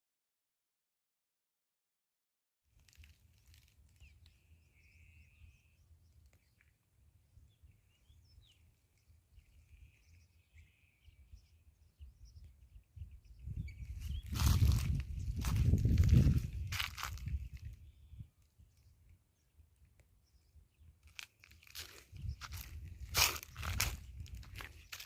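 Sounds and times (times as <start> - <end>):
faint bird chirps: 2.9 - 19.6
wind rumble on microphone: 9.4 - 19.0, 21.8 - 25.0.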